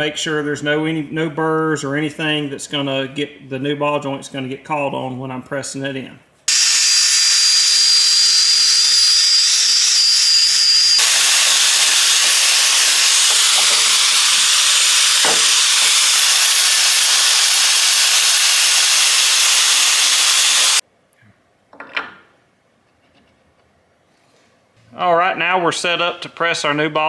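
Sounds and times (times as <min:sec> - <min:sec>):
drill sanding metal: 0:06.5 - 0:20.8.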